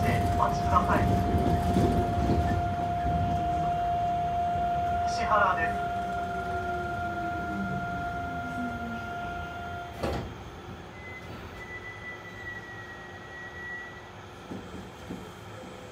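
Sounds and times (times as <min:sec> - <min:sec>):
train clunk stopping: 0:00.0 - 0:03.8, 0:06.0 - 0:12.6, 0:14.4 - 0:15.8
train chopper whine: 0:00.0 - 0:14.6
train running noise: 0:00.0 - 0:15.9.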